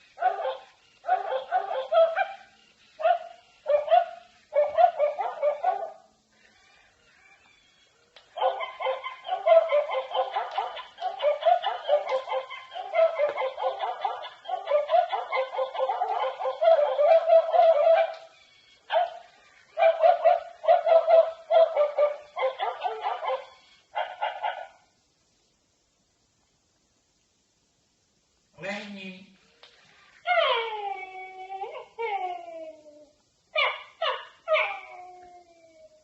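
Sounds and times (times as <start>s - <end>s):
toy dog yapping and barking: 0.1s - 24.8s, 30.2s - 32.6s, 33.6s - 35.1s.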